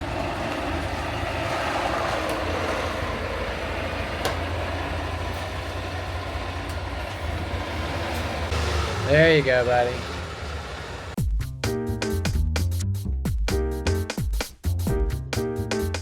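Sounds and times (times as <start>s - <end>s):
heavy vehicle engine rumble: 0.0s - 11.2s.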